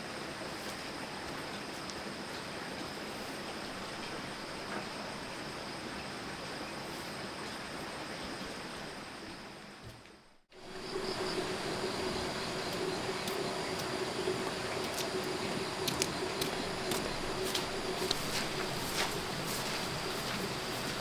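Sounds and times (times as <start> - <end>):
outdoor background noise: 0.0 - 21.0
steady low hum: 10.5 - 21.0.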